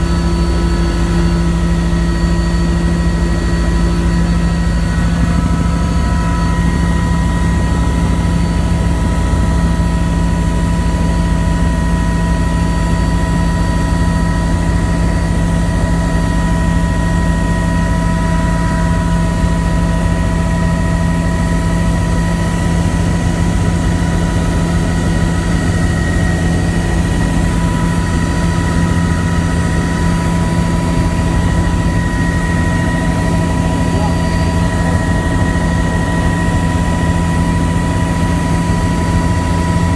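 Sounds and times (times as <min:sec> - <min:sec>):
helicopter turbine and rotor: 0:00.0 - 0:39.9.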